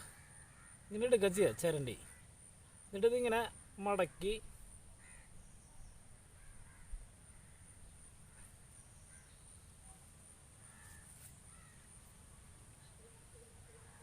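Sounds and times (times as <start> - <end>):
distant crows cawing: 0.0 - 2.5, 5.0 - 5.4, 6.3 - 9.4, 10.6 - 11.9.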